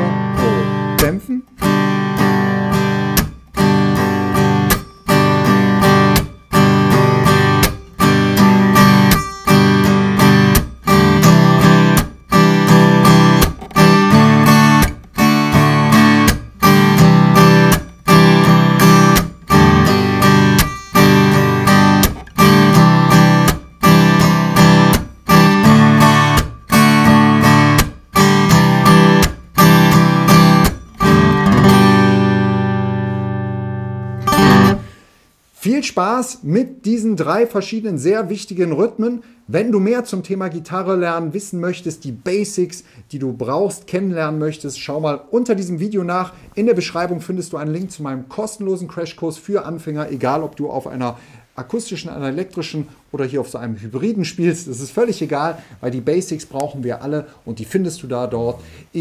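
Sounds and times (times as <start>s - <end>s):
muted percussive guitar stroke: 0.0s - 35.0s
acoustic guitar strumming: 0.0s - 35.4s.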